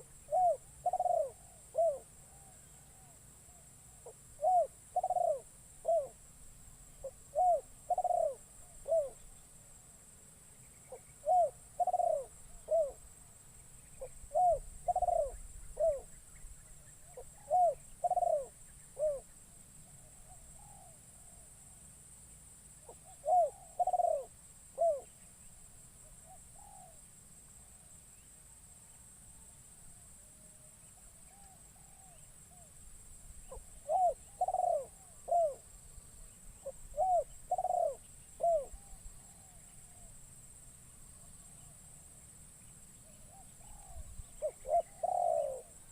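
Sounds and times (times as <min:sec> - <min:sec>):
dove cooing: 0:00.0 - 0:03.2, 0:04.0 - 0:06.2, 0:07.0 - 0:09.3, 0:10.9 - 0:13.0, 0:14.0 - 0:16.1, 0:17.0 - 0:19.3, 0:22.8 - 0:25.1, 0:26.2 - 0:27.0, 0:33.5 - 0:35.6, 0:36.6 - 0:40.1, 0:43.3 - 0:45.9.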